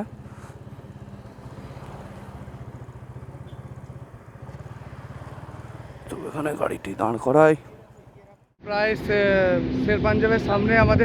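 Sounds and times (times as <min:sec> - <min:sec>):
motorcycle engine throbbing: 0:00.0 - 0:08.0.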